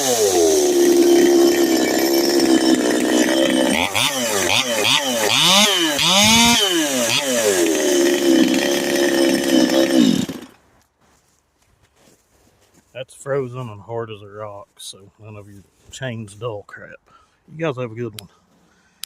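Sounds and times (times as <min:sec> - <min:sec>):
chainsaw cutting wood: 0:00.0 - 0:10.6.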